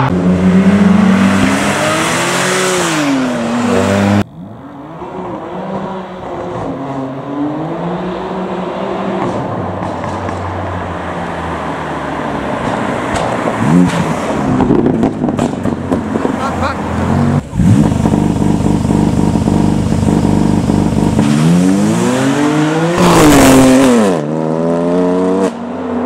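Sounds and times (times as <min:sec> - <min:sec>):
car engine revving hard: 0:00.0 - 0:04.2, 0:16.2 - 0:26.0
car engines revving: 0:00.0 - 0:26.0.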